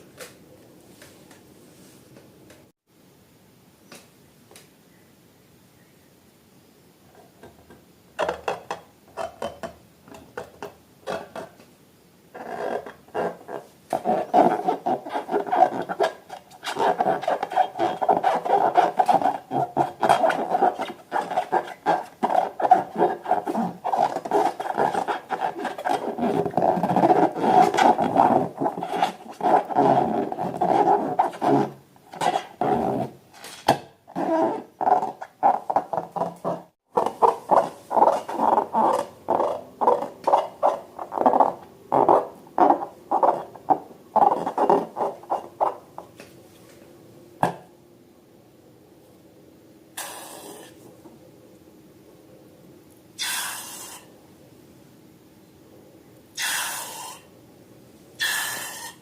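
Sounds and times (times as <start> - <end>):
slime and balloons squelching: 14.0 - 32.8.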